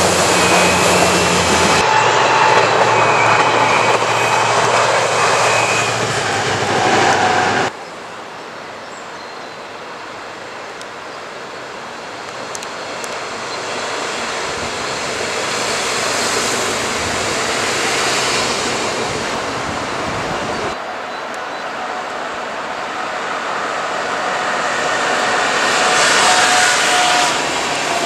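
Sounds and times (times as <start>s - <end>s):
train passing close by: 0.0s - 28.0s.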